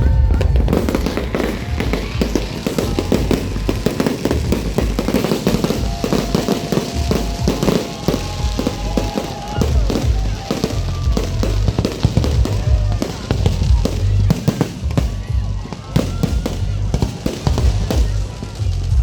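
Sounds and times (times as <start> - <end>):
low rumble: 0.0 - 6.4
fireworks crackling and popping: 0.0 - 19.0
music playing: 0.0 - 19.0.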